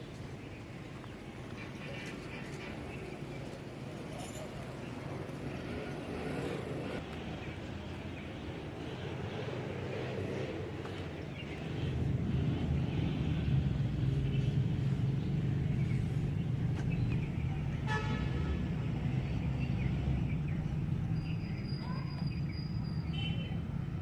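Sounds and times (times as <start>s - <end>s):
diesel locomotive engine drone: 0.0s - 23.0s.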